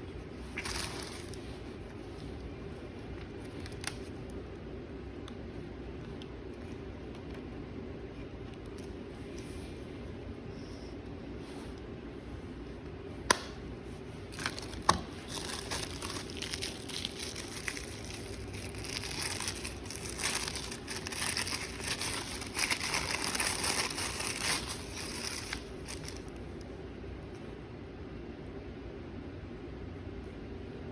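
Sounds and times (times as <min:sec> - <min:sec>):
faint steady hum: 0:00.0 - 0:30.9
packaging crinkling and rustling: 0:00.4 - 0:01.6, 0:03.4 - 0:04.2, 0:14.3 - 0:26.6.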